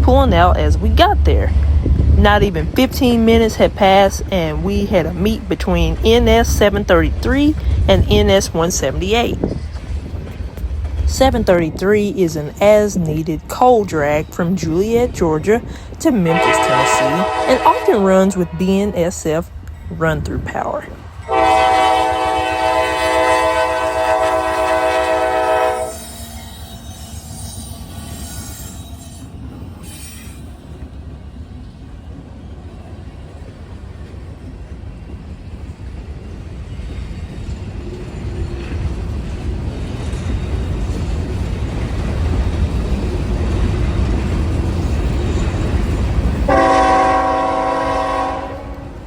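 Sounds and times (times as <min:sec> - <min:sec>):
freight train rumbling past: 0:00.0 - 0:49.0
locomotive air horn chord: 0:16.2 - 0:19.0, 0:21.3 - 0:26.2, 0:46.5 - 0:49.0.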